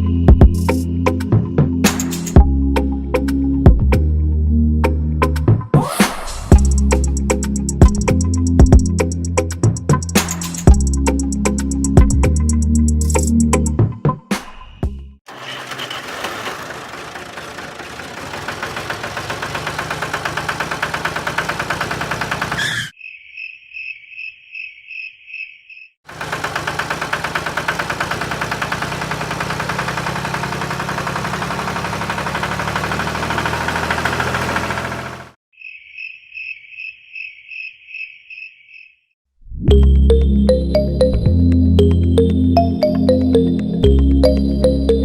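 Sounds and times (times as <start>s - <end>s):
small engine knocking: 15.3s - 22.9s, 26.1s - 35.4s.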